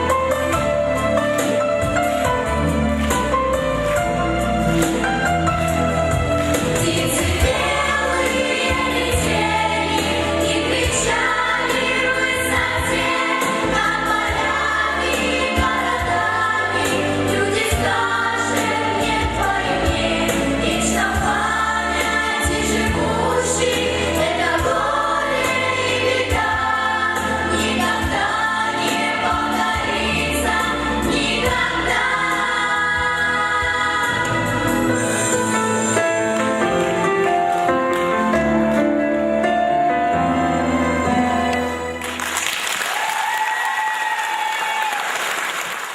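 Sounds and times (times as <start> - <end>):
vocal group singing: 6.5 - 36.9.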